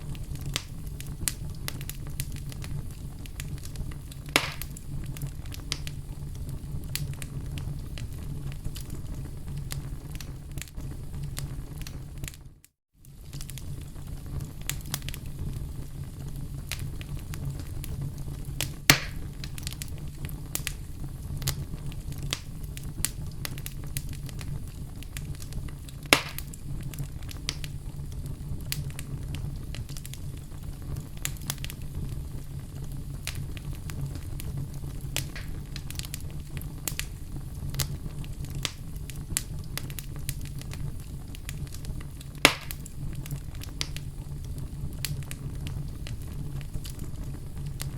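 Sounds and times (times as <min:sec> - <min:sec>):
campfire crackling: 0:00.0 - 0:47.9
sharp loud fire pops: 0:03.5 - 0:04.8, 0:18.6 - 0:19.7, 0:26.0 - 0:26.6, 0:35.2 - 0:36.2, 0:42.4 - 0:42.9.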